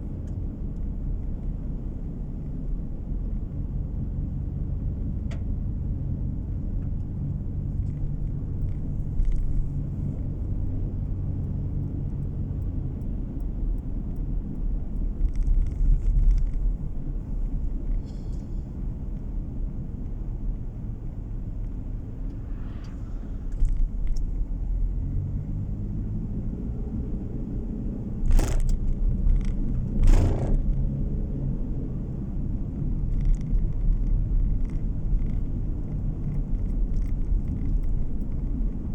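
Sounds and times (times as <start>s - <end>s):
car cabin road rumble: 0.0s - 38.9s
sharp knocks: 30.0s - 30.7s.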